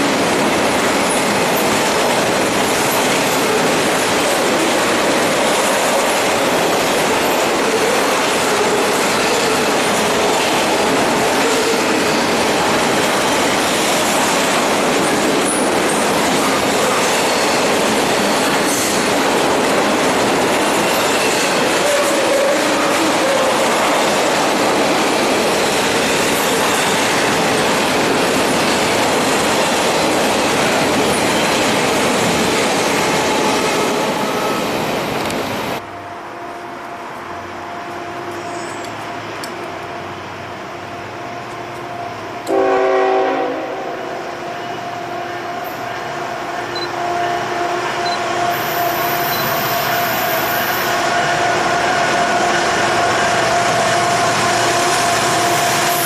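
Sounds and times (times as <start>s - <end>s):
diesel locomotive engine hum: 0.0s - 56.0s
train wheel and rail noise: 0.0s - 56.0s
train air horn blast: 42.5s - 44.2s.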